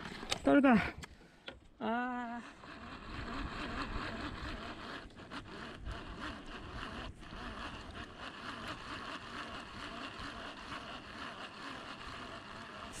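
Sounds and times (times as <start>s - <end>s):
wind: 0.0s - 13.0s
person exclaiming: 1.8s - 2.5s.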